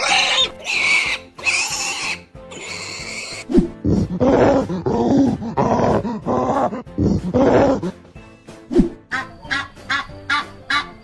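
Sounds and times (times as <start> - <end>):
background music: 0.0 - 11.0
cartoon gorilla grunting roars: 3.0 - 8.0.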